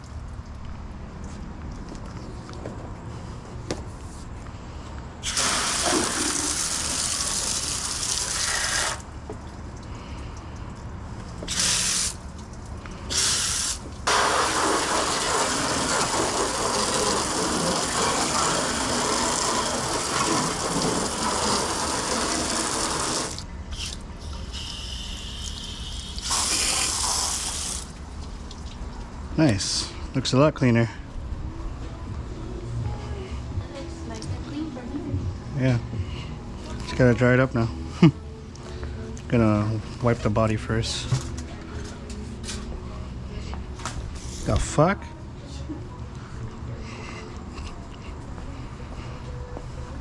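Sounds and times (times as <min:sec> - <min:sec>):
hose spraying water: 0:05.2 - 0:09.1, 0:11.4 - 0:12.4, 0:13.0 - 0:28.0.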